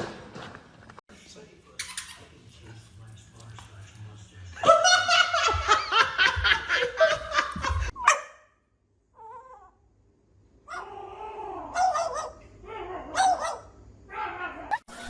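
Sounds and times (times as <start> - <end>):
person laughing hard: 4.6 - 8.0.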